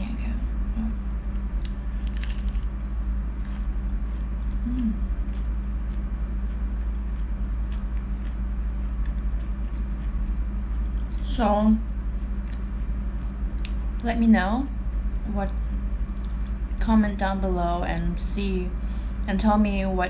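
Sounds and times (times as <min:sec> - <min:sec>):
steady low hum: 0:00.0 - 0:20.0
chewing and biting squid: 0:01.6 - 0:11.2.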